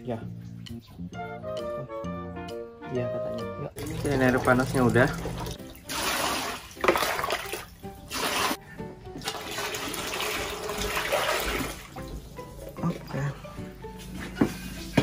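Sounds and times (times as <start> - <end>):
water pouring into basin: 3.8 - 8.6, 9.2 - 12.0.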